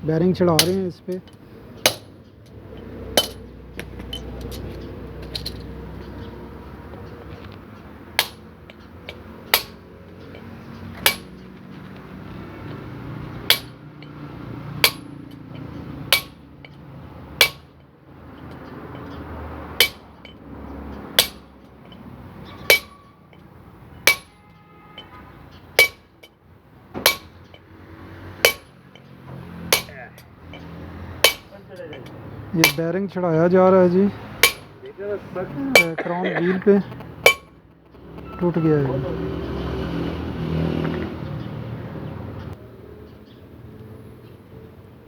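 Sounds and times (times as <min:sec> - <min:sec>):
quiet metal clinks: 0:00.4 - 0:12.8, 0:13.4 - 0:26.4, 0:27.1 - 0:27.7, 0:28.4 - 0:32.9
hammer blows on metal: 0:22.5 - 0:23.2, 0:24.0 - 0:25.2, 0:25.8 - 0:26.1, 0:29.7 - 0:32.9.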